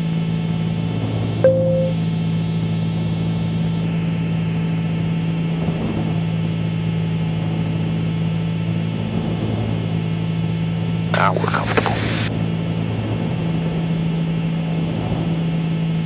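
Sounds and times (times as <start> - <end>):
aircraft engines and propellers droning: 0.0 - 16.0
click with brief tone: 1.4 - 2.0.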